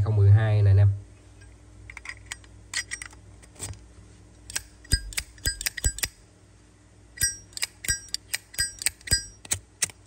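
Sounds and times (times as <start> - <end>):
ringing metallic clinks: 4.9 - 6.1, 7.2 - 9.4.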